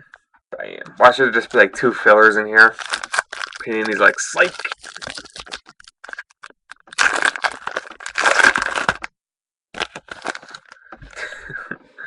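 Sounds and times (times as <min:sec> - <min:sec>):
foil wrapper crinkling and tearing: 0:01.4 - 0:09.1, 0:09.7 - 0:10.8.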